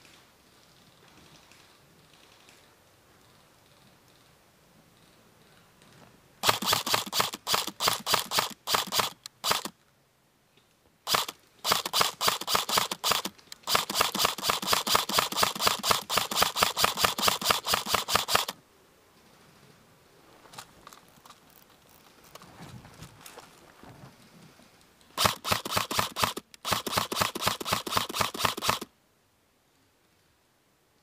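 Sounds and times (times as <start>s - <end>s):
airsoft rifle rapid fire: 6.4s - 9.7s, 11.1s - 18.6s, 25.2s - 28.9s.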